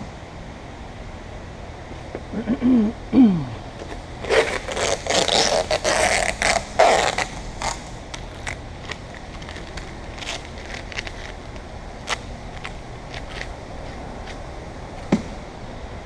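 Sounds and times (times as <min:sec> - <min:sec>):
scraping and rustling: 0:03.8 - 0:14.4.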